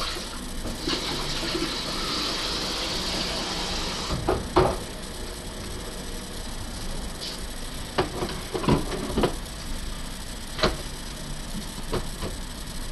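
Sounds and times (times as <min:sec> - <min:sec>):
water running into tank: 0:00.0 - 0:04.1.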